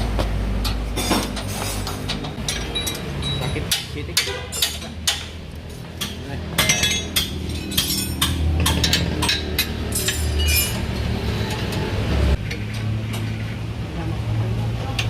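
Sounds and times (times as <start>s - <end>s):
metal tools clinking on metal: 0.6s - 5.4s, 6.0s - 11.8s.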